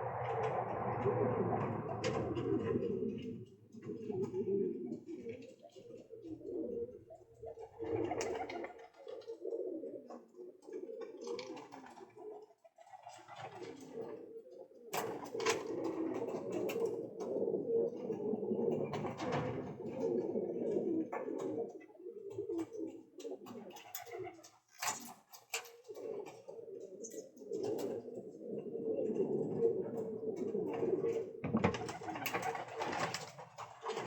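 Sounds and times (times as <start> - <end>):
wings fluttering: 0.0 - 4.4, 30.7 - 34.0
pigeons cooing: 0.0 - 34.0.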